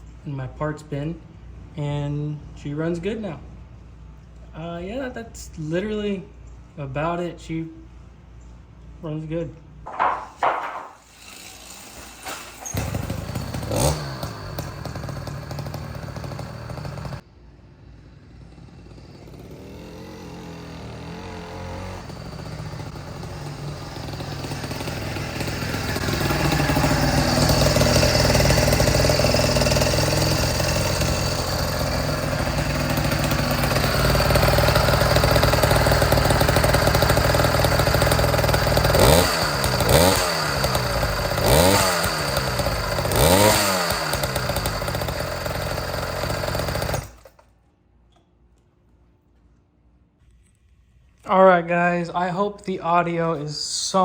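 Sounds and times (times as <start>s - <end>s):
two-stroke bicycle engine running: 9.9s - 17.2s, 17.9s - 47.4s.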